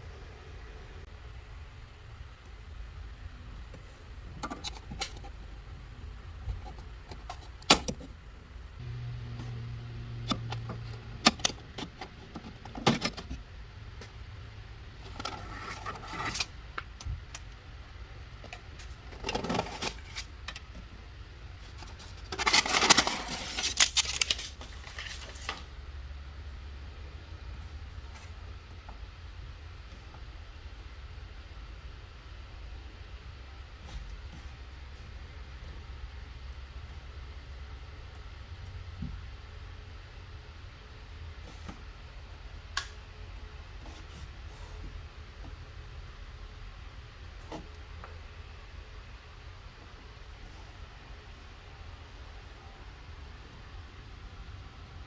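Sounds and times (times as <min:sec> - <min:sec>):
low steady hum: 0:00.0 - 0:55.0
parts clicking and scraping: 0:03.7 - 0:05.7, 0:15.0 - 0:17.6, 0:18.4 - 0:21.0, 0:21.6 - 0:25.7
packaging rattling and rustling: 0:21.8 - 0:25.7.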